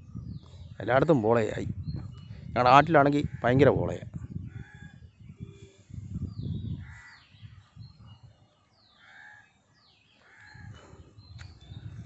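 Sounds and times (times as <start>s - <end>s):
harsh caw-like bird calls: 3.1s - 5.1s, 6.4s - 7.8s, 8.8s - 11.4s.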